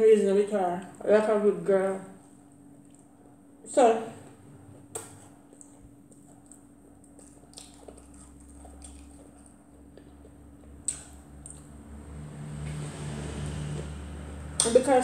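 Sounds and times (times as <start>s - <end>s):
person chewing and smacking lips: 4.6s - 11.8s
low hum: 5.6s - 15.0s.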